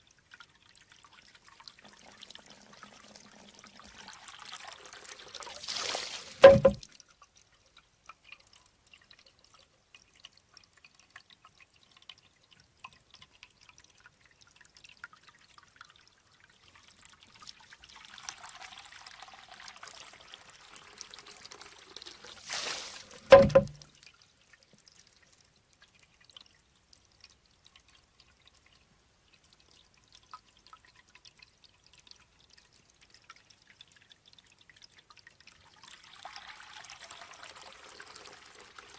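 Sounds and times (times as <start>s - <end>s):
faint water dripping: 0.0s - 38.9s
water rushing from bamboo tube: 1.7s - 7.0s, 17.9s - 24.0s
bamboo tube clacking: 6.2s - 6.9s, 22.6s - 23.9s.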